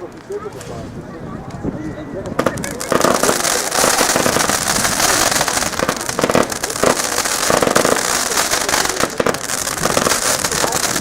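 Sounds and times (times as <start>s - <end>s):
firework battery firing shots: 2.4s - 11.0s.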